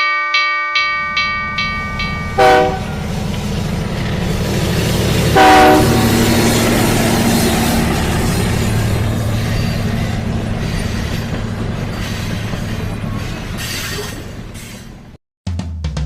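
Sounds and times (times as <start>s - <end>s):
train running on rails: 0.4s - 15.2s
music with drums: 15.4s - 16.0s.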